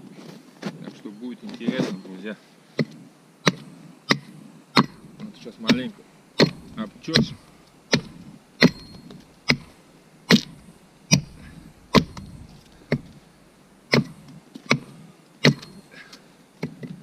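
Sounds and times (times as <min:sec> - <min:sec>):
axe chopping wood: 0:02.8 - 0:13.2, 0:13.9 - 0:15.8.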